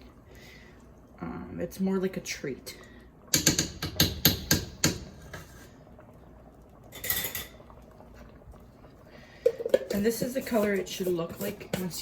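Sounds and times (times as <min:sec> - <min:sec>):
metal utensil knocking on pot: 0:03.4 - 0:05.1
utensil scraping pot: 0:03.4 - 0:05.8, 0:09.4 - 0:12.0.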